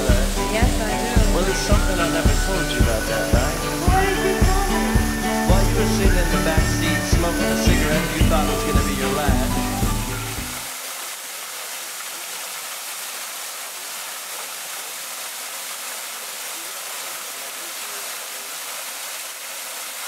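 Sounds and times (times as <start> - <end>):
background music: 0.0 - 10.7
waterfall rushing: 0.0 - 20.0.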